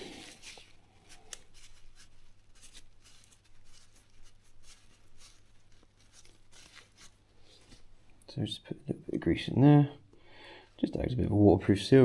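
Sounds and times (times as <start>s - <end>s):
cloth scratching and rubbing: 0.0s - 8.0s.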